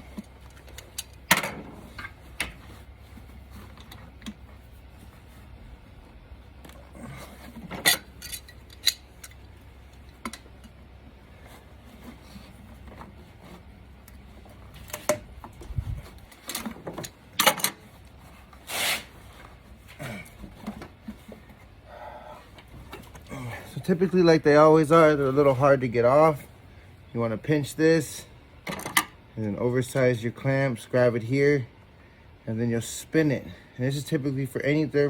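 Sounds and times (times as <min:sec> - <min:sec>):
metal hand tools clinking: 0:07.8 - 0:09.4
tool scrapes: 0:18.6 - 0:19.2.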